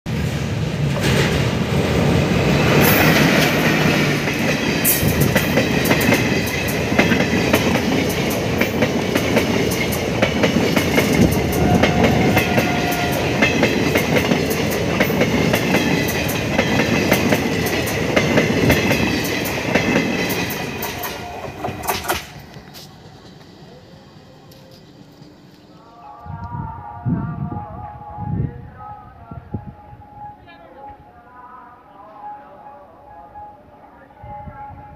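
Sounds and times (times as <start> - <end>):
train passing with clickety-clack: 0.1 - 25.9.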